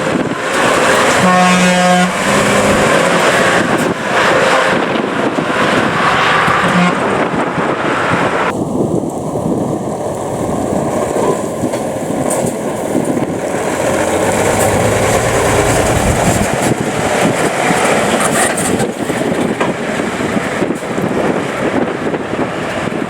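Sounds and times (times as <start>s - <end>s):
diesel truck driving past: 12.9s - 17.2s.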